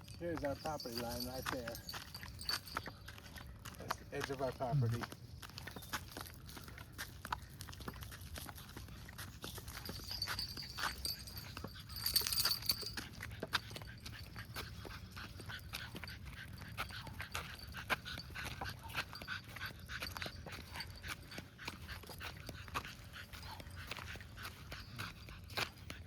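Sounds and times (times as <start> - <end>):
dog whimpering and panting: 5.7 - 26.0.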